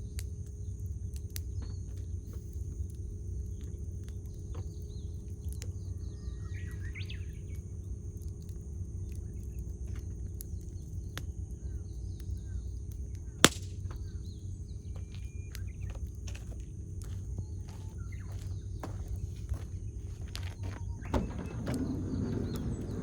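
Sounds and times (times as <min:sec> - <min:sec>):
campfire crackling: 0:00.0 - 0:23.0
birds chirping: 0:00.6 - 0:07.9, 0:09.0 - 0:23.0
loud sharp snap of fire: 0:10.4 - 0:14.3.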